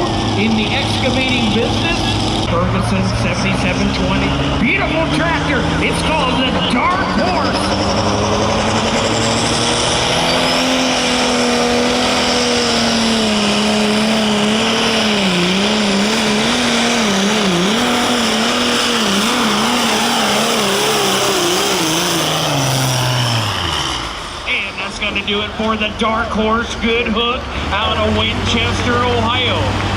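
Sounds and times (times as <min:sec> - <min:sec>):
diesel tractor engine at full throttle: 0:00.0 - 0:29.9.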